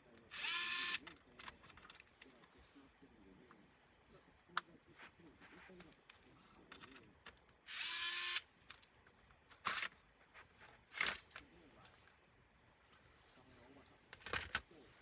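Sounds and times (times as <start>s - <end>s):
electric screwdriver whirring: 0.3s - 1.0s, 7.7s - 8.4s
light clicks from handling parts: 1.0s - 2.6s, 5.7s - 7.6s.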